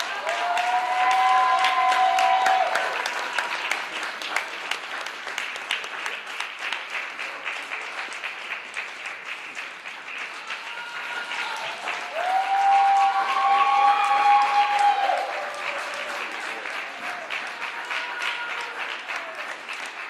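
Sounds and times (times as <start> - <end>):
crowd cheering: 0.0 - 5.8, 10.0 - 20.0
audience applauding: 0.0 - 20.0.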